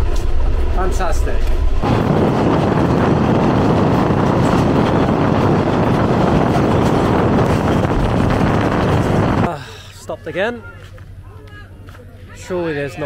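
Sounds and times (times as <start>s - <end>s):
train wheel and track noise: 0.0s - 9.6s
wind buffeting microphone: 0.0s - 9.7s.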